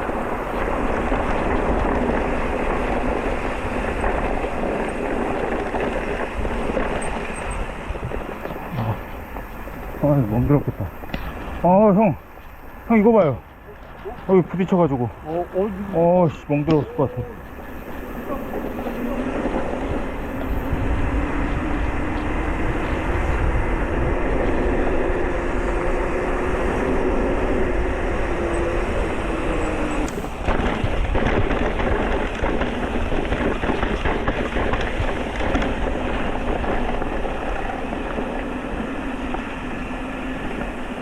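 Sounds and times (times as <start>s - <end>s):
bike rattling: 0.0s - 41.0s
wind rumble: 0.0s - 41.0s
bike knocks and clatter: 30.1s - 39.7s.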